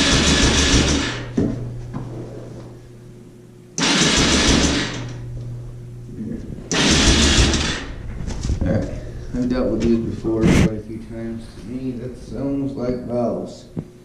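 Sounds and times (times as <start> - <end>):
engine cranking on electric starter: 0.0 - 1.3, 3.8 - 5.2, 6.7 - 8.0.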